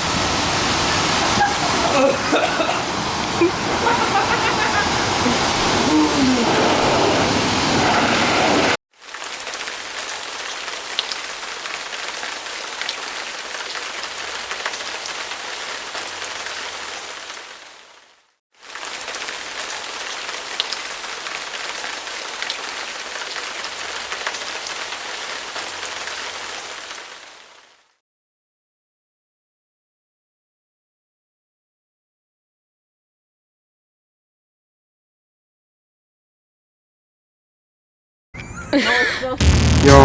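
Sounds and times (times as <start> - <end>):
loud water rush: 0.0 - 8.8
water spraying: 0.0 - 11.9.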